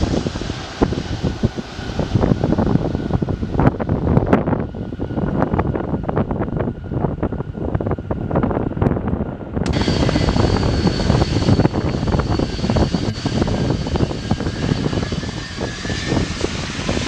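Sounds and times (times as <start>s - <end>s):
jet engines rumbling: 0.0s - 17.0s
low whine: 0.0s - 17.0s
thin high whine: 9.6s - 17.0s.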